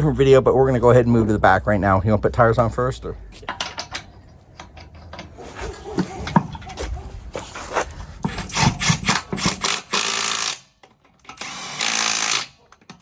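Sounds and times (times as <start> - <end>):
hand tools clattering: 3.4 - 9.6.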